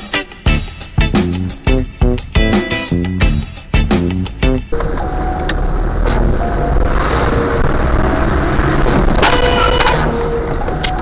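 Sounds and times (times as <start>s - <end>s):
music: 0.0s - 11.0s
car road and engine noise: 2.3s - 11.0s.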